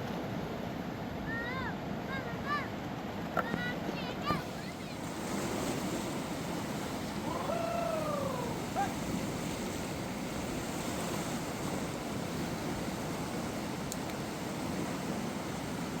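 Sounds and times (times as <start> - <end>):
river water rushing: 0.2 - 16.0
short falling call: 7.2 - 9.0.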